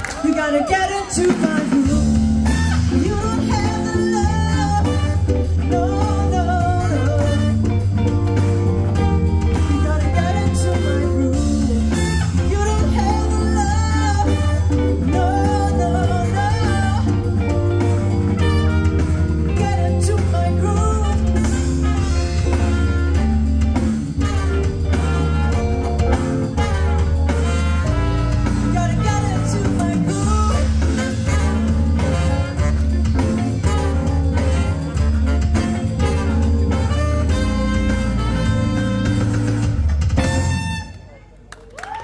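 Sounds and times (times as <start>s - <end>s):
person singing: 0.0s - 22.7s, 28.4s - 39.3s
guitar: 0.0s - 41.2s
drums: 0.0s - 42.0s
heavy bass: 1.2s - 41.2s.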